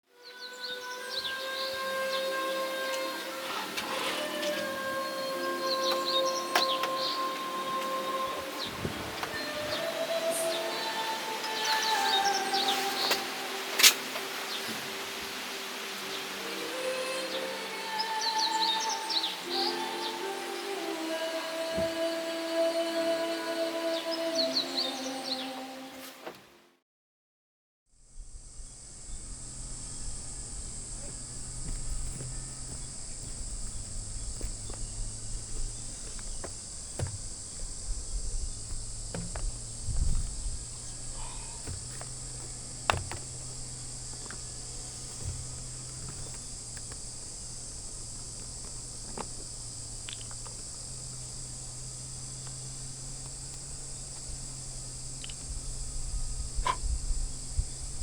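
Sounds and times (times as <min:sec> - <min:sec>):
insect chorus: 0:00.0 - 0:26.2, 0:28.0 - 0:58.0
low steady hum: 0:28.0 - 0:58.0
light knocks and clicks: 0:41.6 - 0:51.2.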